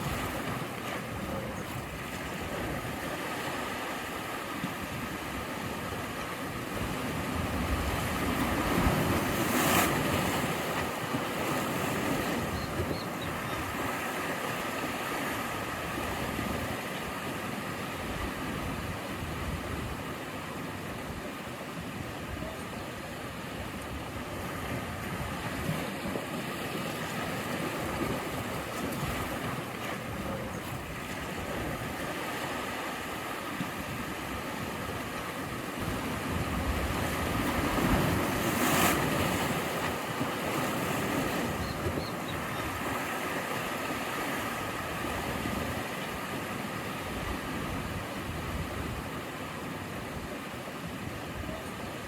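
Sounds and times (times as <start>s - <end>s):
sea waves surf hiss: 0.0s - 52.0s
wave crashing: 22.5s - 41.6s.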